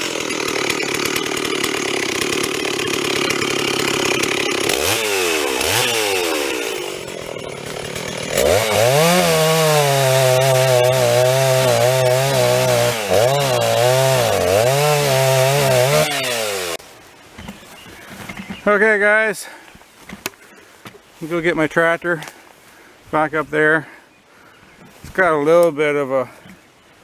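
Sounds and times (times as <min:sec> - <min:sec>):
chainsaw sawing wood: 0:00.0 - 0:16.8.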